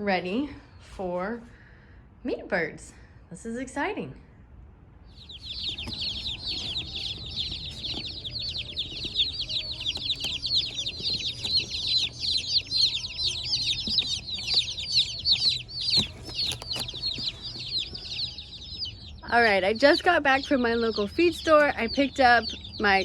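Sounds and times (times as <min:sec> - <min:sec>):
chicks peeping: 0:05.0 - 0:23.0.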